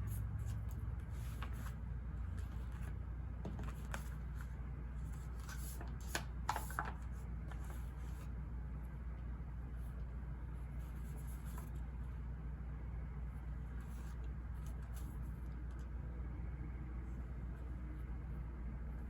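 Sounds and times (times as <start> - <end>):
low ambient background noise: 0.0 - 19.0
paper rustling: 0.4 - 8.3.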